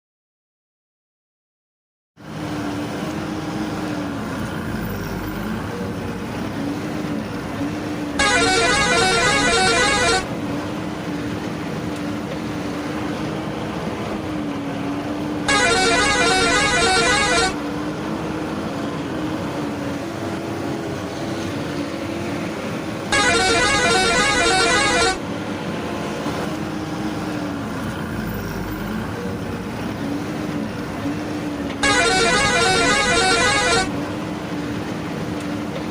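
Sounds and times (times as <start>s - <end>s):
engine drone: 2.4s - 14.5s, 15.2s - 35.7s
vehicle horn blasts: 8.2s - 10.3s, 15.5s - 17.6s, 23.1s - 25.2s, 31.8s - 33.9s.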